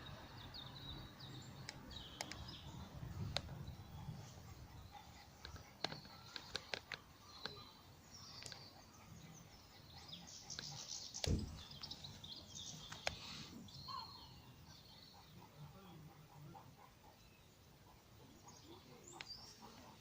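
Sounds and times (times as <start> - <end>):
faint birdsong: 0.0 - 20.0
sharp clicks: 1.6 - 2.6, 5.4 - 7.6, 10.5 - 11.9
low thump: 11.2 - 11.7.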